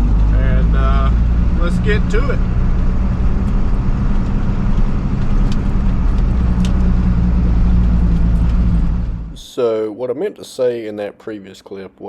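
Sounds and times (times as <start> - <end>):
vehicle engine droning: 0.0 - 9.5.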